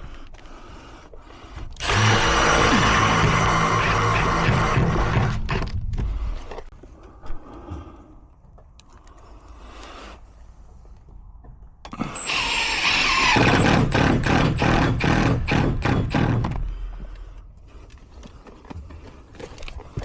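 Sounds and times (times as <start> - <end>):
engine pulsing: 1.8 - 5.7
high squeal on engine start: 12.2 - 13.7.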